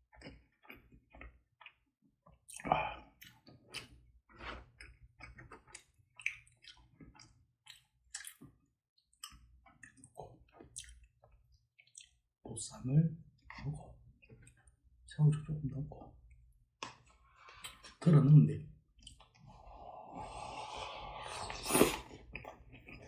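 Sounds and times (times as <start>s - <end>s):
chewing crunch: 0.1s - 12.2s, 13.4s - 14.8s, 19.0s - 20.1s, 21.0s - 23.0s
wet chewing mouth clicks: 2.5s - 8.5s.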